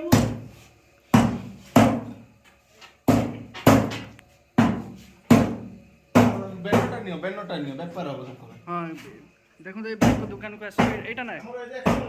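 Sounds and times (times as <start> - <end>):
cleaver chopping on a block: 0.1 - 0.4, 1.1 - 2.1, 3.1 - 7.0, 10.0 - 11.1, 11.8 - 12.0.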